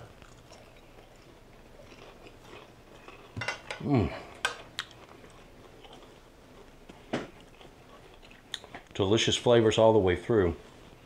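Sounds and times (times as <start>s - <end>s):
man chewing crunchy food: 0.0s - 9.0s
man humming mmm: 3.8s - 4.4s.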